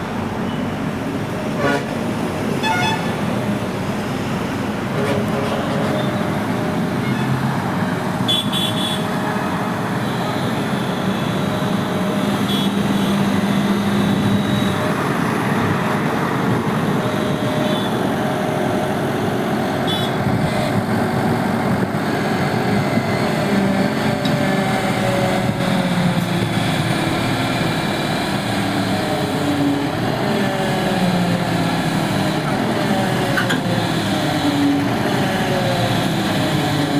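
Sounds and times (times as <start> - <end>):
diesel excavator engine running: 0.0 - 36.9.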